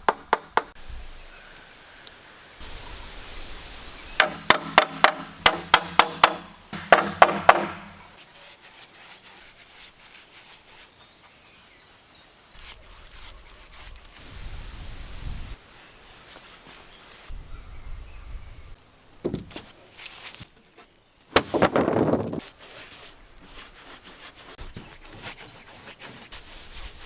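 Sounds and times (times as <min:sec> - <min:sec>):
hammer striking wood: 0:00.0 - 0:00.8, 0:04.2 - 0:08.1, 0:21.4 - 0:22.0
knocking and handling of wood: 0:04.2 - 0:08.2, 0:19.2 - 0:22.6.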